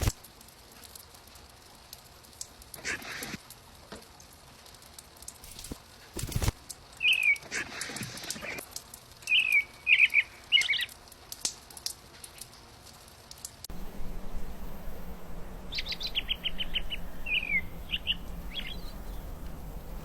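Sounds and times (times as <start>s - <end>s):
small birds chirping: 6.9s - 8.6s, 9.2s - 11.0s, 13.7s - 20.0s.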